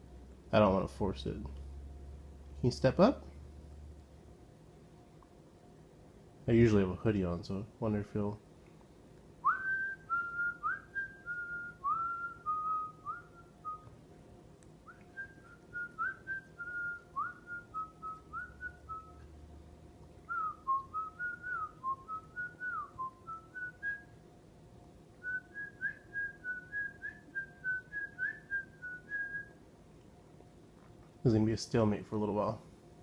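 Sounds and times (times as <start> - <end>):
person whistling a tune: 9.4 - 13.9, 14.9 - 19.2, 20.3 - 24.0, 25.2 - 29.5.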